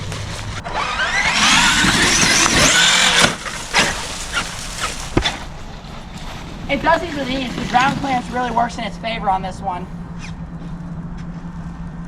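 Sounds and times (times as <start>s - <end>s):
electric toy truck motor whining: 0.0s - 6.1s
sharp knocks: 2.3s - 6.3s.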